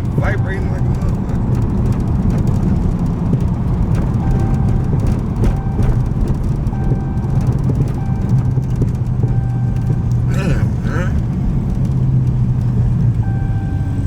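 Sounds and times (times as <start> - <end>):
car exhaust rumble: 0.0 - 14.0.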